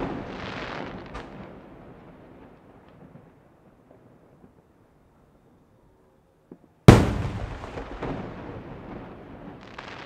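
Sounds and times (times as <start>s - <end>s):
firework stars crackling: 0.0s - 4.9s, 6.9s - 10.0s
rumbling echo: 6.9s - 8.7s
firework bang: 6.9s - 10.0s.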